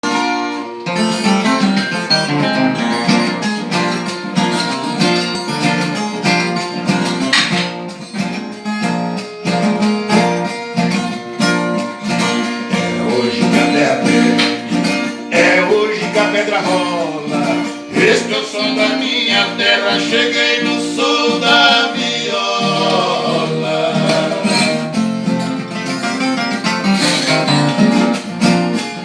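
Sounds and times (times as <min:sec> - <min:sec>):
picked string melody: 0:00.0 - 0:29.0
strummed guitar chords: 0:00.0 - 0:29.0.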